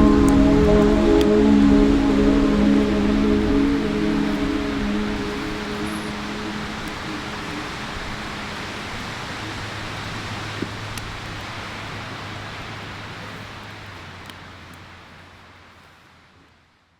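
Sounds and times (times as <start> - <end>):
low hum: 0.0 - 11.8
steady rushing noise: 0.0 - 14.2.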